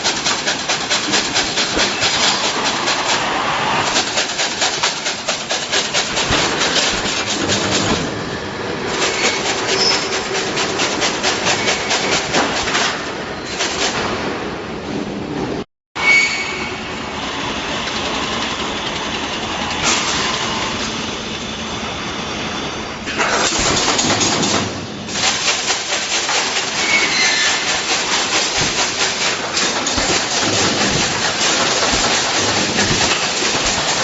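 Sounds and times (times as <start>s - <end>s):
welding machine clattering: 0.0s - 8.2s, 8.8s - 14.2s, 23.1s - 34.0s.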